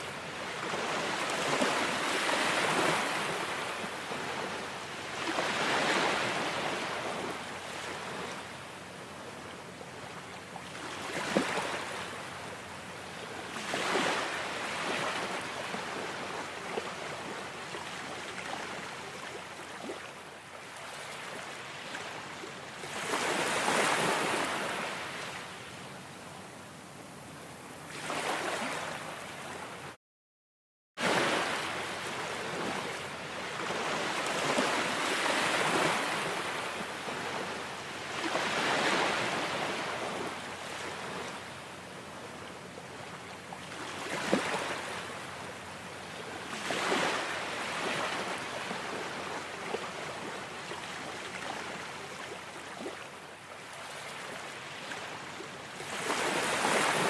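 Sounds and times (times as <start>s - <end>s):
ocean waves washing ashore: 0.0s - 30.0s, 31.0s - 57.0s.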